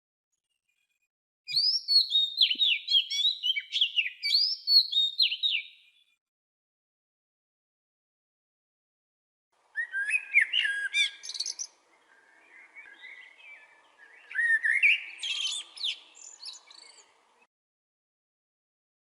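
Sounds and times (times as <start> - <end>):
soft bird chirps: 1.5 - 6.2, 9.7 - 17.5
songbird singing: 1.5 - 6.2, 9.6 - 17.5.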